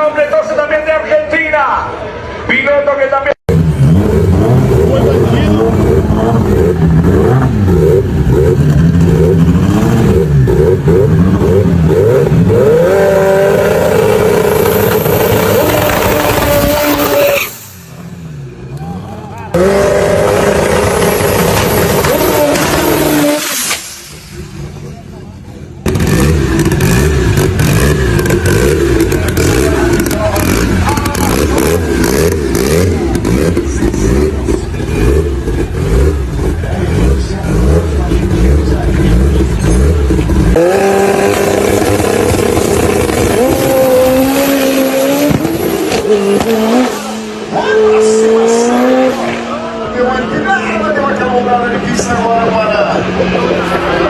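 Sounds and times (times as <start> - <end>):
small car engine revving: 3.5 - 18.9, 19.5 - 54.0.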